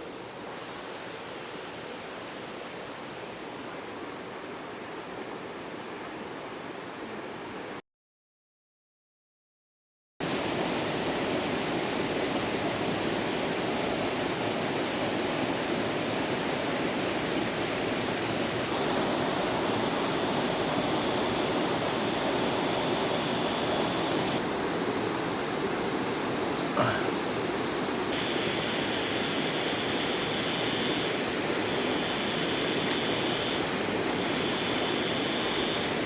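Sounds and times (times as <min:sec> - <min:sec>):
river water rushing: 0:10.3 - 0:36.0
faint high steady tone: 0:18.7 - 0:24.4, 0:28.2 - 0:36.0.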